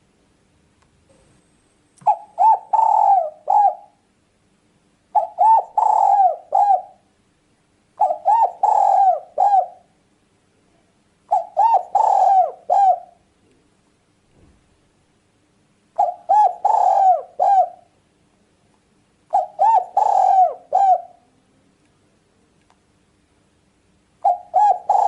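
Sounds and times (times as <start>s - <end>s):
dove cooing: 2.0s - 4.0s, 5.1s - 7.1s, 8.0s - 9.9s, 11.3s - 13.2s, 16.0s - 17.9s, 19.3s - 21.4s, 24.2s - 25.0s.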